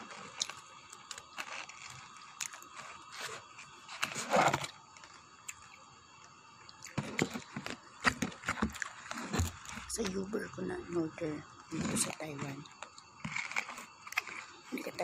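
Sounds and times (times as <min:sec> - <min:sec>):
person chewing: 0:00.0 - 0:05.8, 0:06.7 - 0:09.9, 0:12.6 - 0:14.6
cardboard box scraping: 0:02.8 - 0:04.8.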